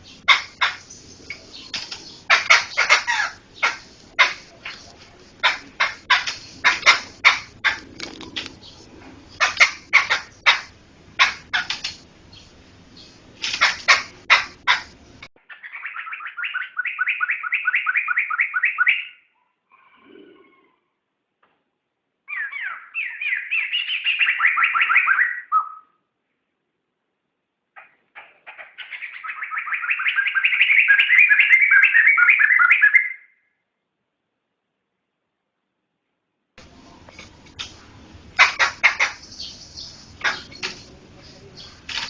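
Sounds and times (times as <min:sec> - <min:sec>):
bird harsh calls: 0:00.0 - 0:20.9, 0:22.3 - 0:26.0, 0:27.8 - 0:33.4, 0:37.6 - 0:42.0
bird rattling trill: 0:05.4 - 0:08.8.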